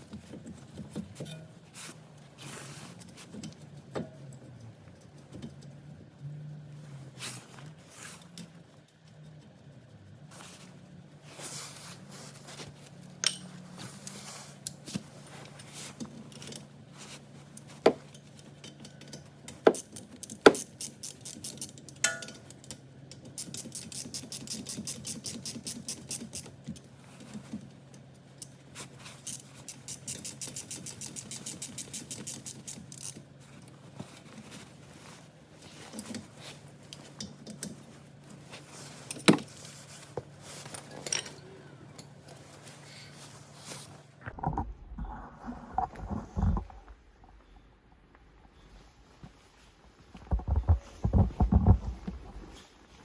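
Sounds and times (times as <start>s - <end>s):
steady low hum: 0.0s - 23.4s, 25.6s - 53.0s
ratchet wrench clicking: 19.0s - 22.8s, 23.4s - 26.5s, 29.2s - 33.2s
metallic knocks of tools: 22.0s - 22.8s.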